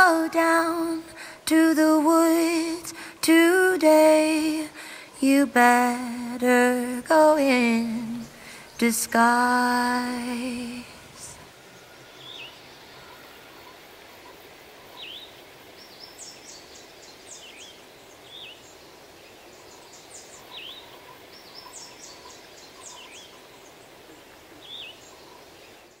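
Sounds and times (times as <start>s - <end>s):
steady background hiss: 0.0s - 26.0s
rapid high bird twittering: 14.7s - 26.0s.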